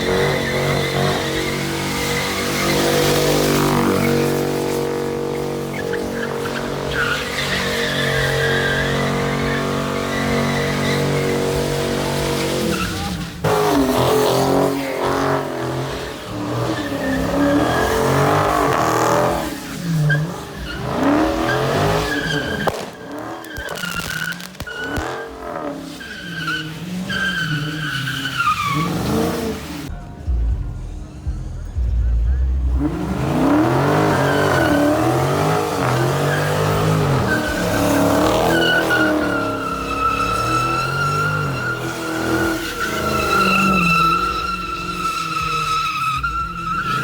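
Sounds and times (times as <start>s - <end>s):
car engine revving hard: 0.0s - 23.8s, 32.6s - 45.7s
tires squealing: 0.0s - 29.9s, 32.5s - 47.0s.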